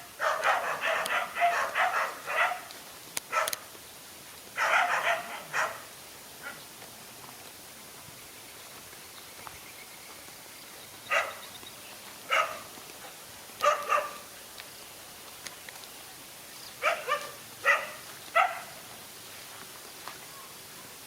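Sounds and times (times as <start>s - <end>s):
steady hiss: 0.0s - 21.0s
dog barking: 0.2s - 2.7s, 3.3s - 3.6s, 4.6s - 6.6s, 11.1s - 11.4s, 12.3s - 12.7s, 13.6s - 14.3s, 16.8s - 18.8s.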